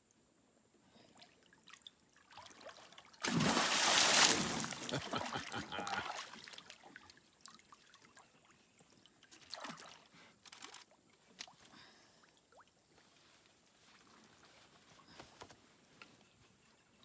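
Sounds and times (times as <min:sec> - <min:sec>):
water splashing and trickling: 0:01.0 - 0:14.2.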